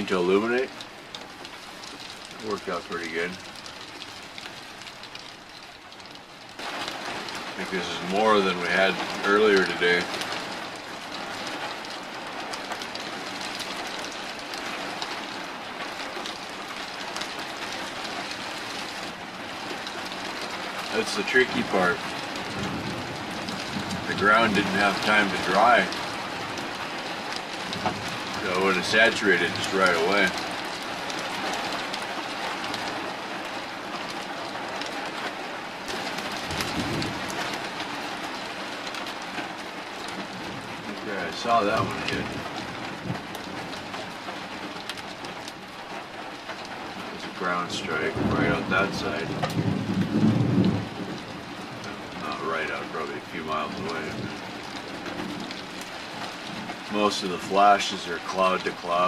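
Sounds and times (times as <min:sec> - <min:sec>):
heavy rain falling: 0:00.0 - 0:59.0
thunder rumbling: 0:16.2 - 0:33.0, 0:35.8 - 0:45.5, 0:46.9 - 0:59.0.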